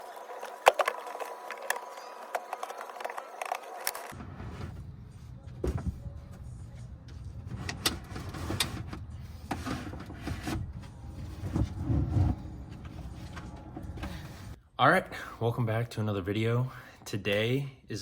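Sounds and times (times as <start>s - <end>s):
vehicle rumbling: 4.0s - 14.6s.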